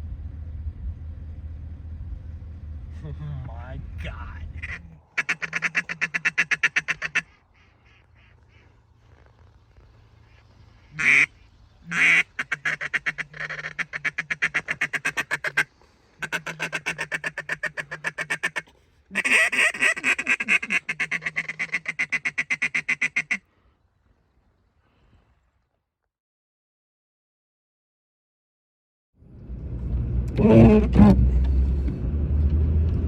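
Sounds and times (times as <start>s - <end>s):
duck quacking: 4.6s - 8.8s, 10.3s - 23.4s.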